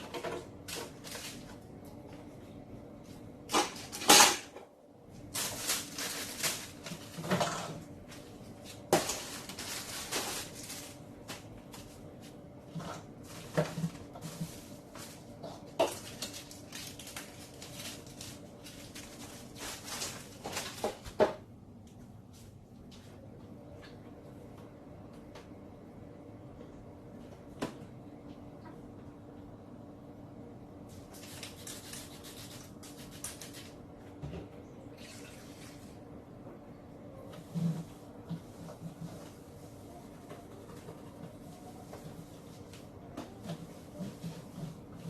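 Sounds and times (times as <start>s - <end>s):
rustling: 8.1s - 12.1s.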